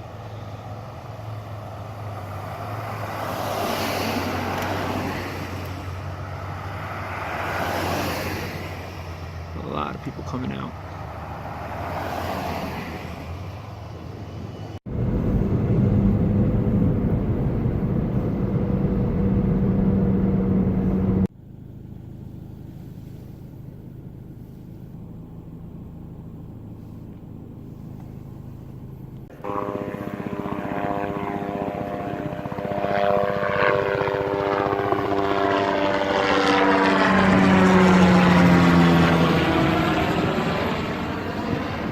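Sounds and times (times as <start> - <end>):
propeller airplane engine droning: 0.0 - 41.9.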